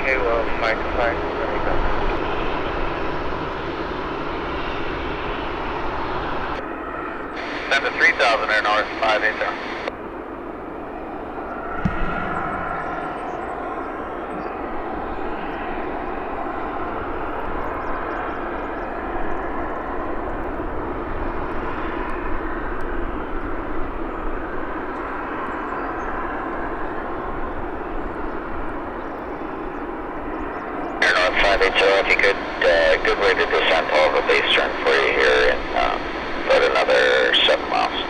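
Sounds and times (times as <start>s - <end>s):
airliner engines passing: 0.0s - 38.0s.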